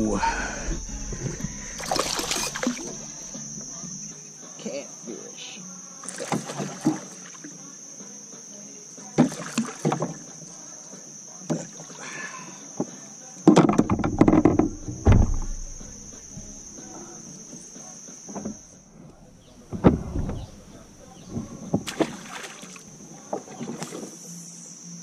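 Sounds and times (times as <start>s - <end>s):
fish thrashing against kayak hull: 0.0s - 3.6s, 13.6s - 16.8s, 19.6s - 24.1s
insects buzzing: 0.0s - 25.0s.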